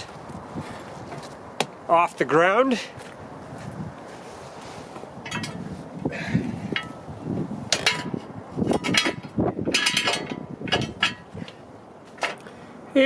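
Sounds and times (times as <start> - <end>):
metal clinks and knocks: 5.2 - 5.7, 6.7 - 7.0, 7.7 - 11.4.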